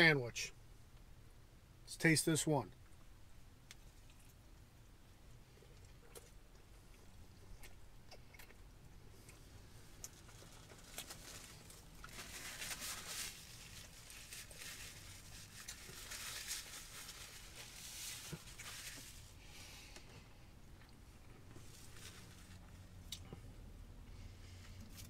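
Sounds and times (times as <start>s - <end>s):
person chewing food: 3.7s - 12.1s
paper wrapper rustling: 10.2s - 19.3s.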